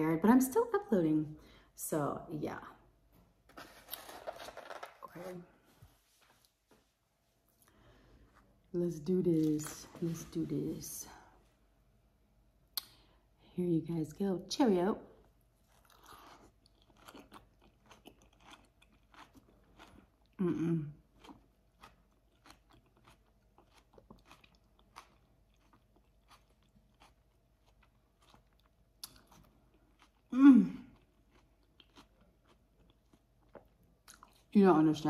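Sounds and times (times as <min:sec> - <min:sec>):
woman chewing salad: 0:15.6 - 0:20.4, 0:21.0 - 0:34.5.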